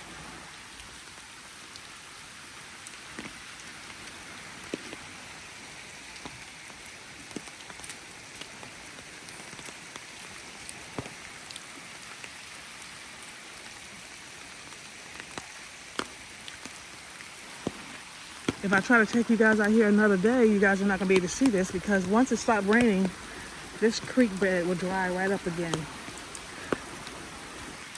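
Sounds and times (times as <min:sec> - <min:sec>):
steady rain hiss: 0:00.0 - 0:27.9
sharp drip ticks: 0:15.2 - 0:27.9.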